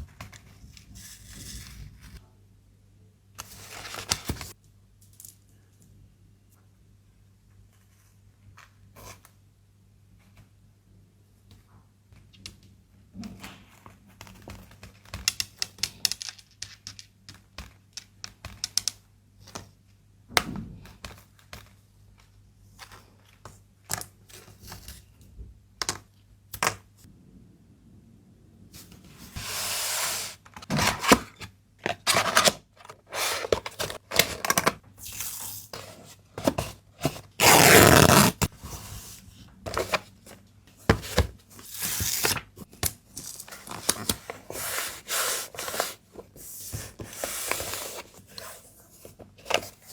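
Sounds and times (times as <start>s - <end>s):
hands handling packaging: 29.4s - 38.6s
packing material rasping: 37.3s - 38.5s.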